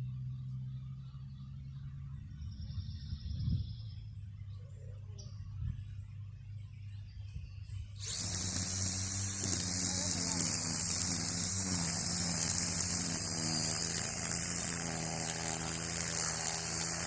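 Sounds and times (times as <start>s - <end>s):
loud hissing noise: 8.0s - 17.0s
string trimmer running: 8.0s - 17.0s.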